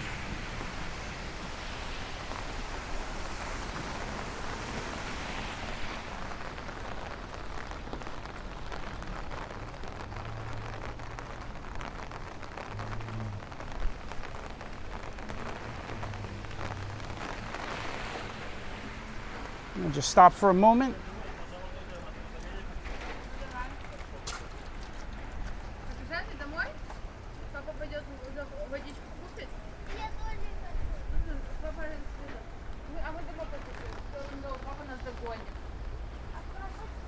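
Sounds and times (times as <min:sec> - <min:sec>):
rain on an umbrella: 0:00.0 - 0:37.0.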